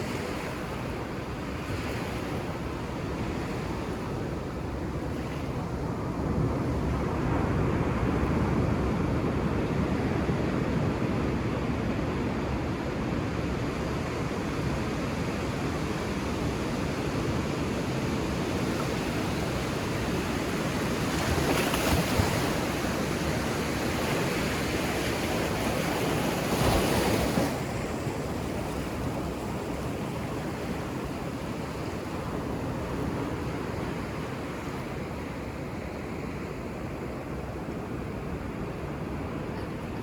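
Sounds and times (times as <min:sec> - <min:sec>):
ocean surf washing: 0:15.2 - 0:40.0
waves breaking: 0:18.2 - 0:40.0.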